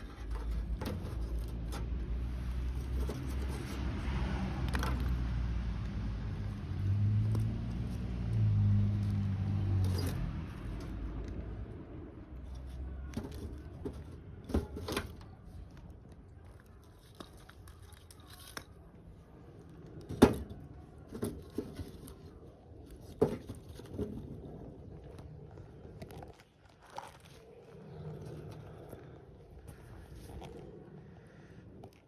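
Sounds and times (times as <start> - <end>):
objects handled by hand: 0.0 - 32.0.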